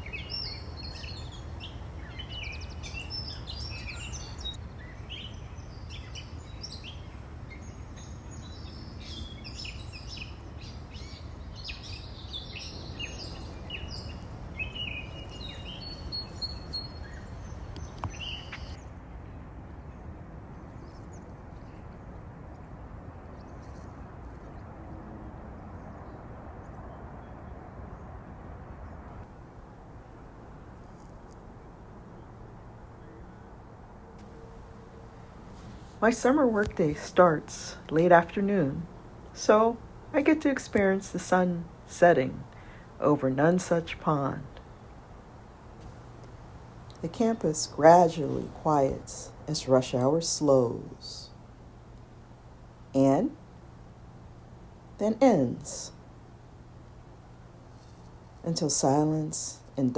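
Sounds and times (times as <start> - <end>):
birds chirping and singing: 0.0 - 7.0, 8.0 - 18.8
distant highway traffic hum: 0.0 - 59.9.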